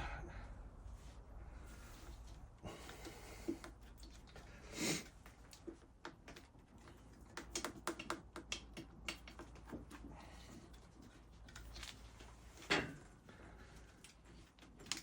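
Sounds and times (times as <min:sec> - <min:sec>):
light clicks and taps: 0:05.2 - 0:12.0.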